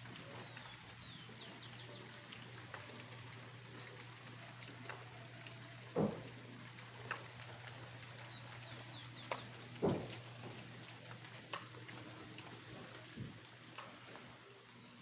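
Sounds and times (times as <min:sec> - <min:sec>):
knocks: 0:09.8 - 0:10.1.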